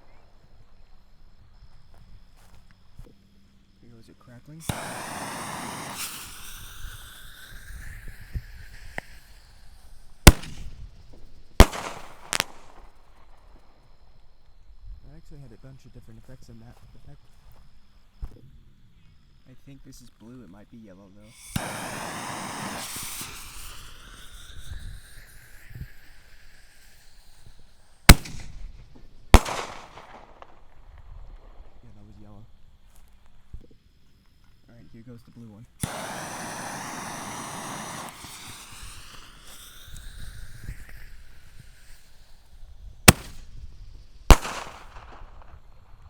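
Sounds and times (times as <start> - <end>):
firework hiss: 0.0 - 18.5, 19.3 - 46.0
sharp loud firework bangs: 4.6 - 13.6, 21.3 - 31.9, 35.8 - 46.0
faint firework pops: 4.6 - 15.5, 21.3 - 34.4, 35.8 - 46.0.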